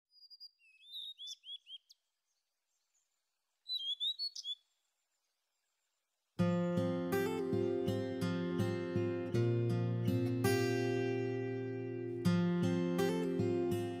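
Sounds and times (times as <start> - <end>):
songbird singing high chirps: 0.1 - 5.4.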